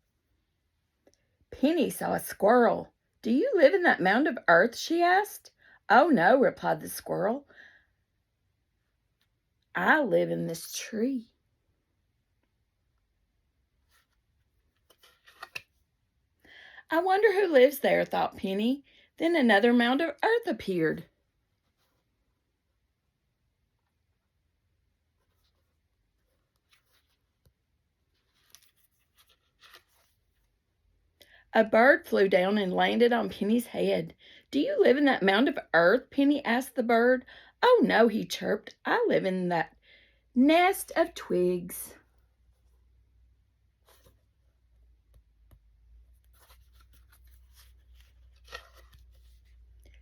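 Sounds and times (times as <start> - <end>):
paper page rustling: 13.9 - 15.8, 25.2 - 27.5, 28.1 - 30.5, 43.8 - 44.3, 46.1 - 50.0.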